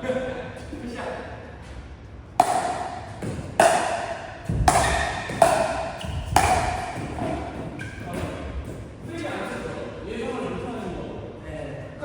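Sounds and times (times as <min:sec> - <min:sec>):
paddles hitting ball: 0:02.4 - 0:08.9.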